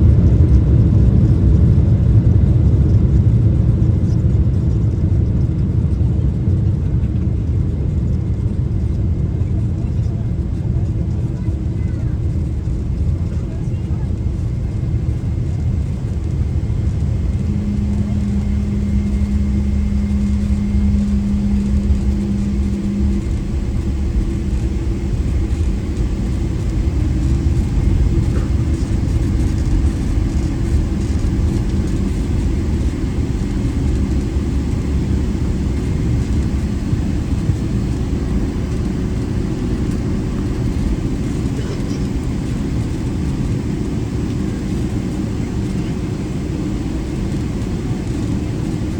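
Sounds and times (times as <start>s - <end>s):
airplane cabin rumble: 0.0s - 48.9s
steady hum: 10.8s - 48.9s.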